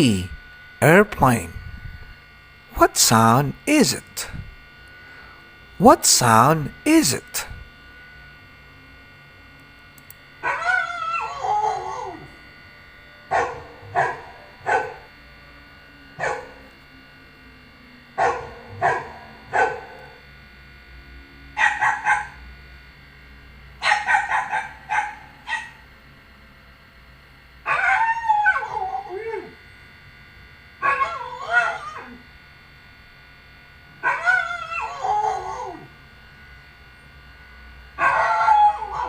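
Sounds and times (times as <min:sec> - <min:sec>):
dog barking: 0:13.3 - 0:15.0, 0:16.2 - 0:16.6, 0:18.2 - 0:20.2, 0:21.6 - 0:22.4, 0:23.8 - 0:25.8, 0:30.8 - 0:32.2, 0:34.0 - 0:35.0.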